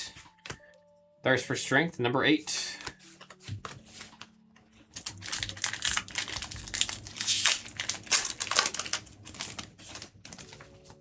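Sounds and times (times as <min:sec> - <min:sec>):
foil wrapper crinkling and tearing: 0:04.8 - 0:11.0.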